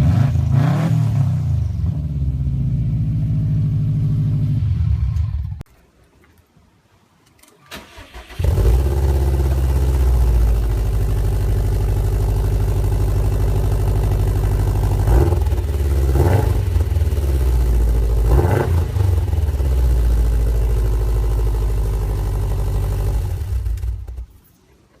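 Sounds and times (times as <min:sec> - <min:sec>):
car engine starting and idling: 0:07.4 - 0:24.5.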